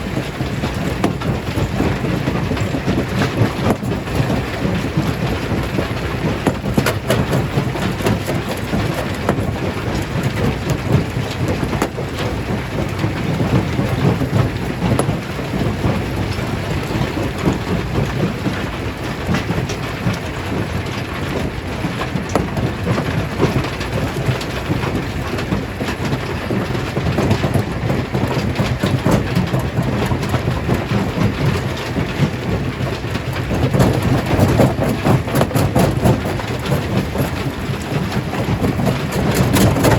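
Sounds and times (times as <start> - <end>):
stone crackling and clattering: 33.3 - 39.9.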